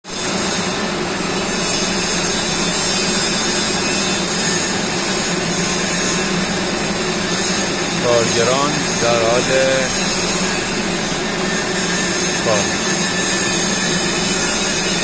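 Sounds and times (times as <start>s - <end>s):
industrial machinery hiss: 1.2s - 15.0s
low machinery hum: 5.7s - 15.0s.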